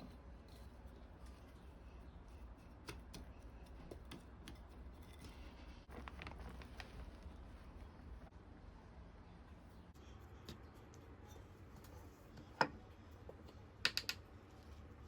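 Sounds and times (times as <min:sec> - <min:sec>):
hands handling potting soil: 0:00.0 - 0:08.3.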